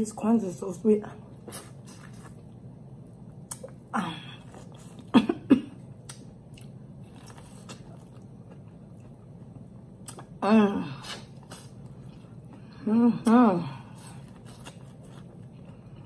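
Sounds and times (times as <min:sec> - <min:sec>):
chewing corn mouth clicks: 0:06.0 - 0:08.6.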